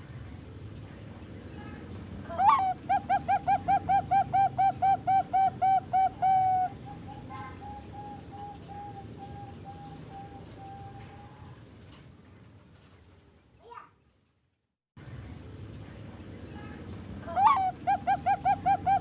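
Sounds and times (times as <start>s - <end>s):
dove cooing: 2.3s - 11.6s, 17.3s - 19.0s.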